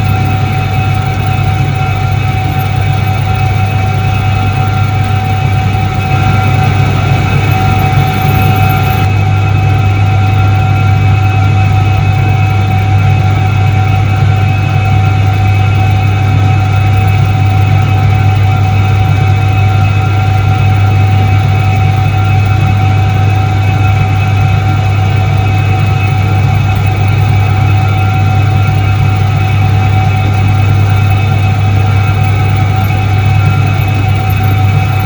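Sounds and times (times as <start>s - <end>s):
washing machine motor humming: 0.0s - 10.3s, 24.9s - 35.0s.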